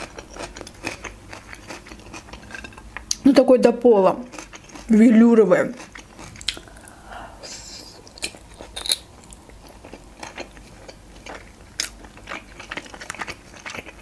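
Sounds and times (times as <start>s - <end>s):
wet chewing mouth clicks: 6.0s - 7.0s.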